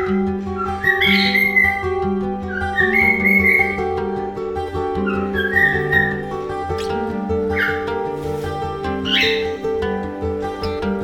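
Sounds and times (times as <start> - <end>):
cockatiel whistling: 0.0 - 4.1, 5.0 - 11.0
acoustic guitar music: 0.0 - 11.0
sharp bird chirp: 9.0 - 9.6.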